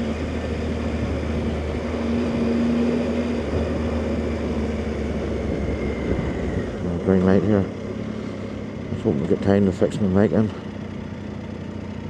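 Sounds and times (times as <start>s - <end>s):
steady humming note: 0.0s - 9.4s
motorcycle engine running: 0.0s - 12.0s
road and wind noise: 0.0s - 12.0s.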